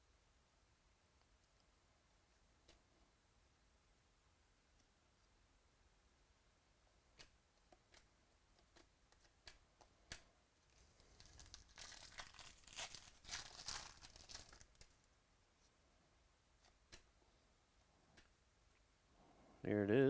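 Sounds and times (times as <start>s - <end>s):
foil wrapper tearing and crinkling: 11.0s - 15.0s.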